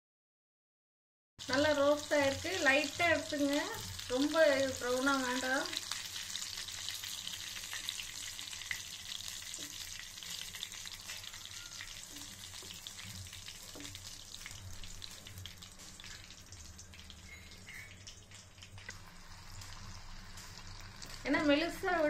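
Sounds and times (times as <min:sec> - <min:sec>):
food deep-frying in oil: 0:01.4 - 0:22.0
oil crackling: 0:05.9 - 0:21.8.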